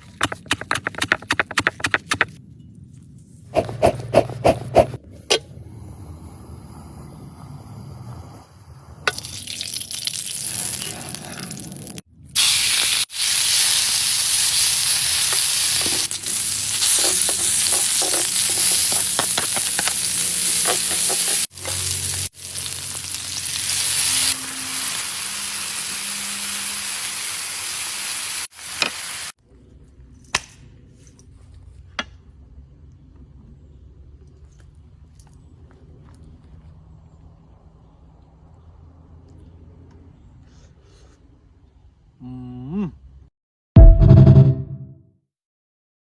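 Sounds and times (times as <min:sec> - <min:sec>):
food sizzling in a pan: 0:12.4 - 0:29.4.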